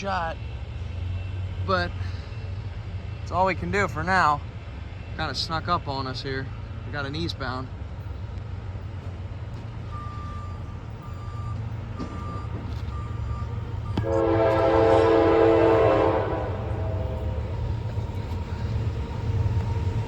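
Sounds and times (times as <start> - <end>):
low rumble of train: 0.0 - 20.0
short beeps: 9.8 - 14.6
locomotive horn blast: 13.5 - 18.7.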